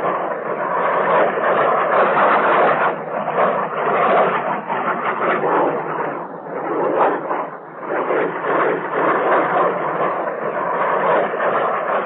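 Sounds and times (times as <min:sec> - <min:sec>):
muffled jet noise: 0:00.0 - 0:12.0.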